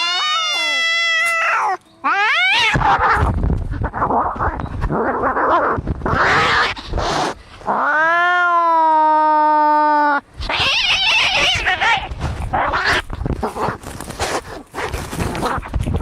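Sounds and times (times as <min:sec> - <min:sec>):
cat yowling: 0:00.0 - 0:03.3, 0:07.7 - 0:13.0
cats hissing and snarling: 0:00.0 - 0:16.0.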